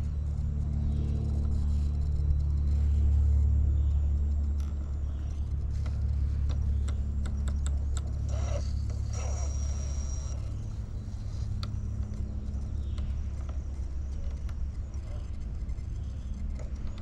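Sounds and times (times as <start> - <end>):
low motor rumble: 0.0 - 17.0
sharp clicks: 4.4 - 10.6
thin high whine: 8.0 - 12.7.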